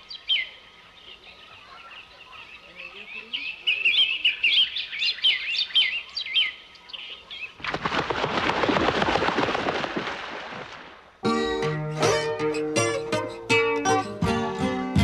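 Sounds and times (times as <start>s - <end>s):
small birds twittering: 0.0s - 7.6s.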